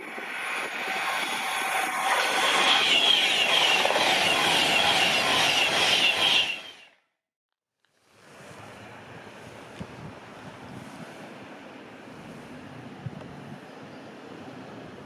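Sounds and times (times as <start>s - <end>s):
train passing at speed: 0.0s - 7.0s
wheel and rail noise: 0.0s - 7.0s.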